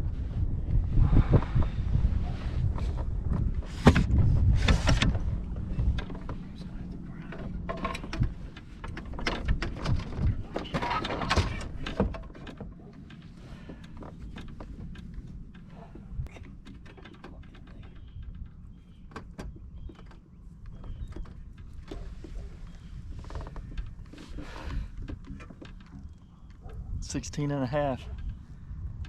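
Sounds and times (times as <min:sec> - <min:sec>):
low rumble: 0:00.0 - 0:10.8
gear knocking and rattling: 0:02.8 - 0:26.4.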